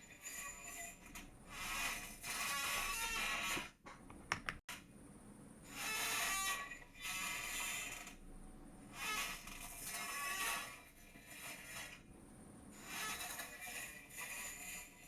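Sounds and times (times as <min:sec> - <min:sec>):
chair creaking: 0:01.0 - 0:03.8.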